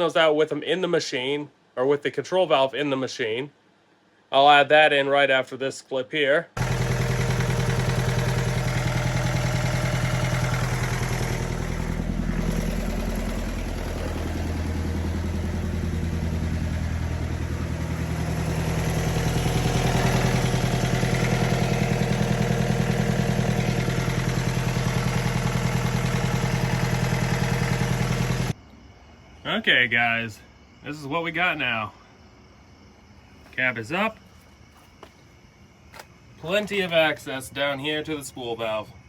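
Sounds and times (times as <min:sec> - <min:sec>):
skid steer diesel engine running: 0:06.6 - 0:28.6.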